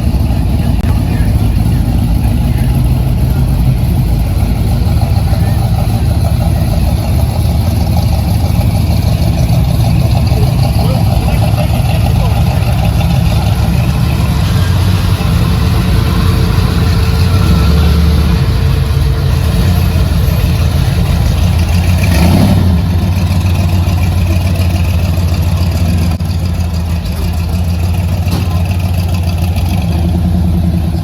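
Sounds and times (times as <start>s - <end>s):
engine revving: 0.0s - 26.2s
vehicle engines running: 0.0s - 31.0s.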